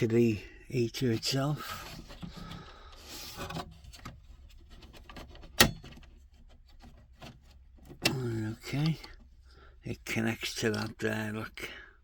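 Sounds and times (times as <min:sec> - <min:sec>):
cable and packaging rustling: 0:01.1 - 0:09.3.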